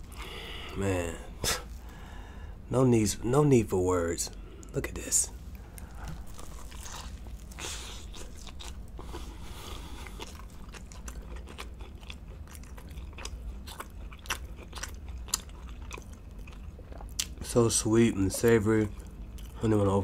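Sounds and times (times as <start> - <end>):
chewing with soft crunches: 4.3 - 20.0
biting into a sandwich: 5.5 - 17.4.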